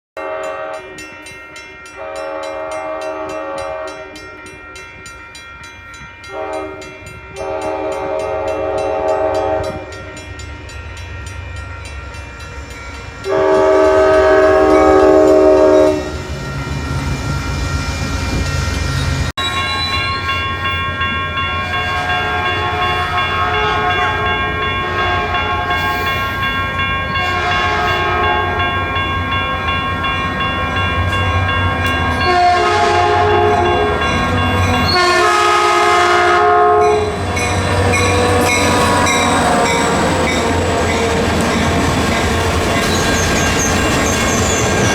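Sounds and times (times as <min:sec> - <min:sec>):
locomotive air horn blasts: 0:00.2 - 0:00.9, 0:02.0 - 0:04.1, 0:06.3 - 0:09.9, 0:13.3 - 0:16.2, 0:21.6 - 0:26.4, 0:27.0 - 0:28.9, 0:30.5 - 0:41.8
train engine rumble: 0:02.0 - 0:44.9.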